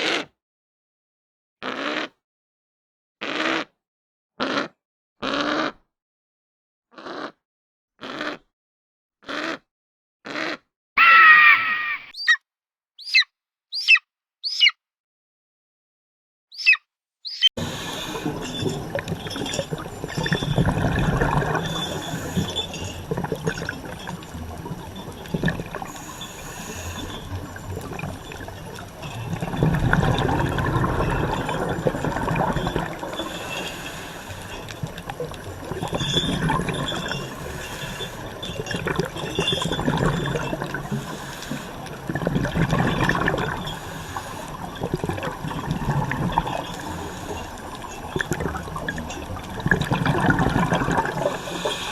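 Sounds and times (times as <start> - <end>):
rushing water: 17.6 - 51.9.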